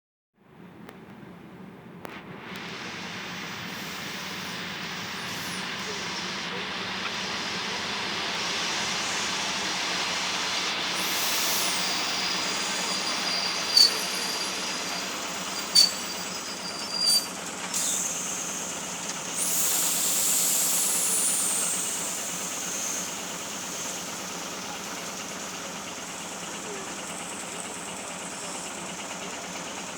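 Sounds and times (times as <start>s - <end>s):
train rolling on rails: 0.6s - 29.9s
high whine sliding down: 2.4s - 18.5s
high-pitched squeal: 2.7s - 23.2s.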